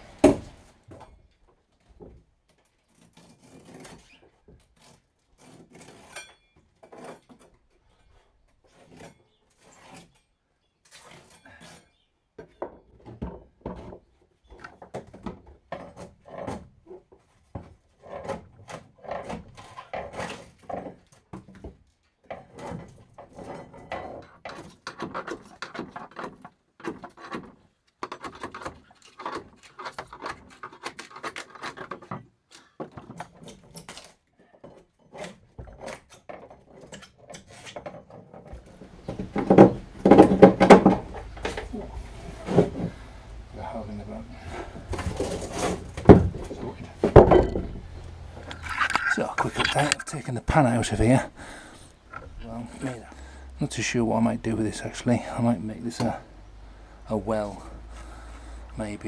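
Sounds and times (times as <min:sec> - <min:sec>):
hand tool scraping boat hull: 0:02.9 - 0:06.2, 0:22.4 - 0:38.0, 0:44.5 - 0:47.8, 0:48.4 - 0:53.0.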